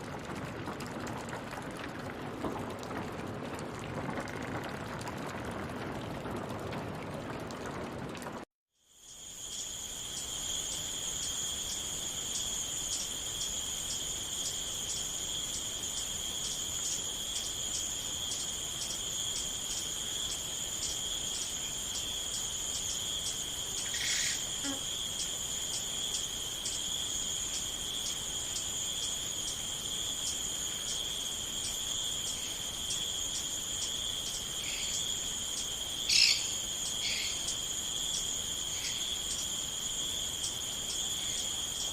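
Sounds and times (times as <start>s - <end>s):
crickets chirping: 8.8s - 41.9s.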